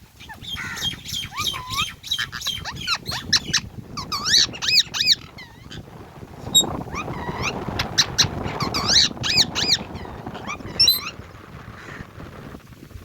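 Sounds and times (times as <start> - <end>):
parakeet chirping: 0.2 - 5.8, 6.5 - 11.2.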